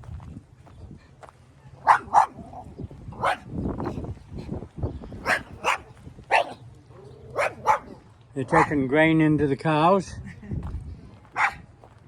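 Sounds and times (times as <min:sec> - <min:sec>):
small dog barking: 0:01.7 - 0:03.5, 0:05.2 - 0:08.8, 0:11.3 - 0:11.7.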